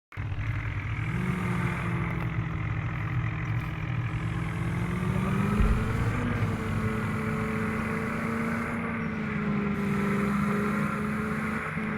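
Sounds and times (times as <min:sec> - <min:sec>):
vehicle engine running: 0:00.1 - 0:11.9
low thump: 0:05.5 - 0:08.2.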